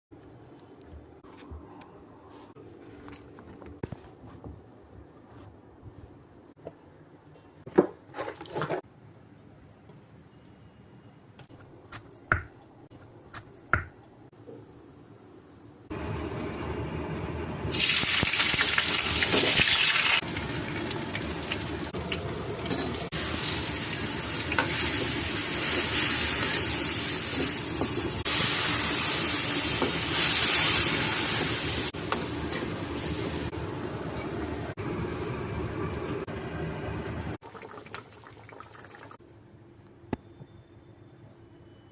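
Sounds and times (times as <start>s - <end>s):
loud hissing of cooking food: 24.8s - 32.0s.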